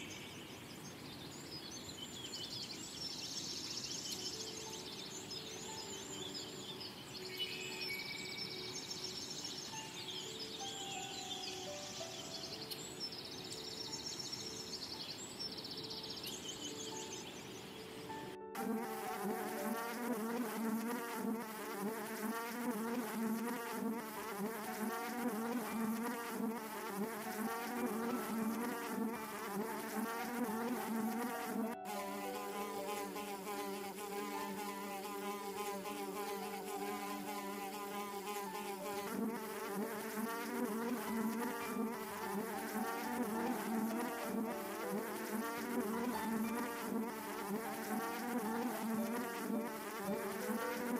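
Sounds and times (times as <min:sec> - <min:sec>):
flying insects buzzing: 0:17.0 - 0:50.9.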